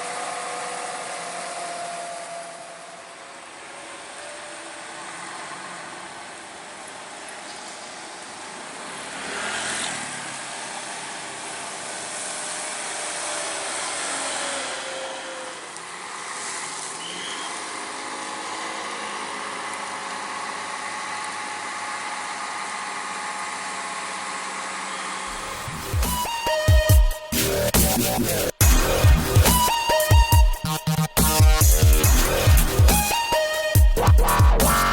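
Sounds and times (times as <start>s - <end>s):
road noise: 0.0s - 22.0s, 24.7s - 26.1s
vehicle engines running: 0.0s - 26.3s.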